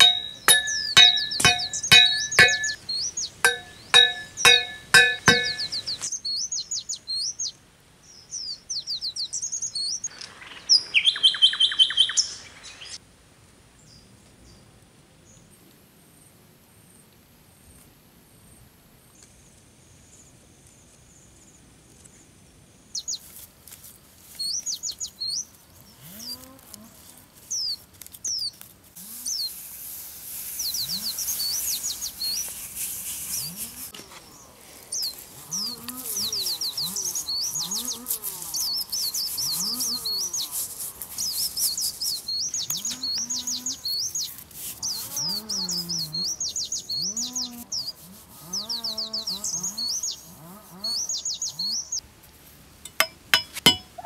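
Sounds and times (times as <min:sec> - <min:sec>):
birds chirping high notes: 0:00.0 - 0:06.0
rising and falling bird calls: 0:00.0 - 0:06.1.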